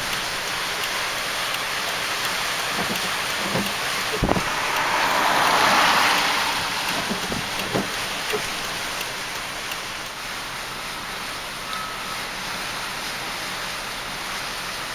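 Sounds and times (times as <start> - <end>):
wind gust with rain: 2.3 - 10.0.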